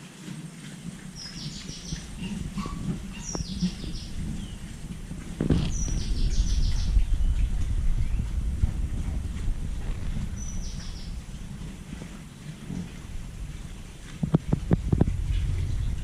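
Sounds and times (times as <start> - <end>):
low rumble: 0.9 - 16.0
bird chirping: 1.1 - 4.8, 5.5 - 8.4, 10.1 - 11.4.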